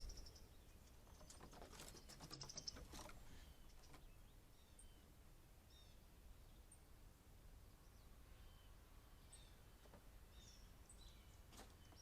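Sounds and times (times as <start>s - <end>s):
wings fluttering: 1.0s - 3.3s.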